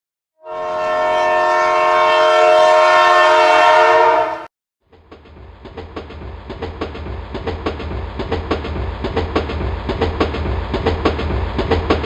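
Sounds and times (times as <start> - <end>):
train horn blast: 0.4 - 4.5
low train rumble: 0.4 - 12.0
train wheels clacking on rails: 4.9 - 12.0.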